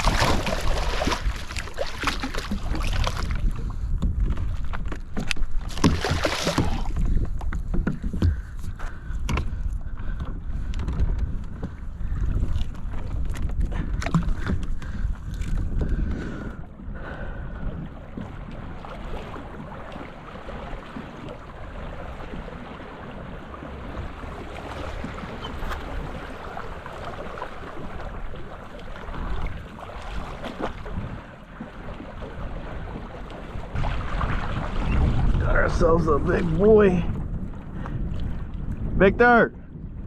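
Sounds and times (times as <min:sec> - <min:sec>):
rushing water: 0:00.0 - 0:03.5, 0:05.6 - 0:07.2, 0:18.2 - 0:37.0
wind buffeting microphone: 0:00.0 - 0:40.0.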